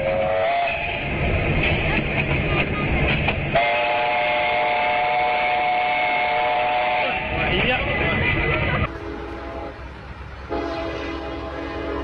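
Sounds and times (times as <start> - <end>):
train rumbling: 0.0 - 12.0
train horn chord: 3.6 - 7.2, 8.9 - 9.8, 10.5 - 12.0.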